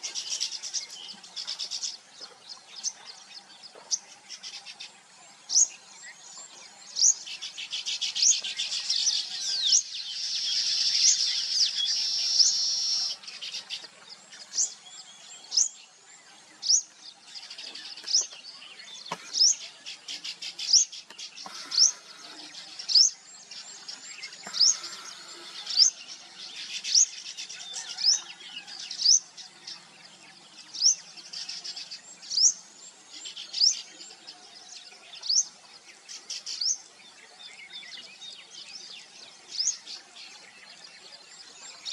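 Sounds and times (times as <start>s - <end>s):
dense high bird twittering: 5.5s - 15.8s, 16.6s - 29.3s.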